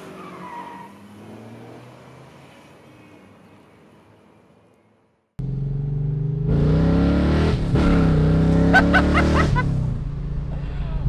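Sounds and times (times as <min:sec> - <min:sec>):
car engine accelerating: 0:05.4 - 0:11.0.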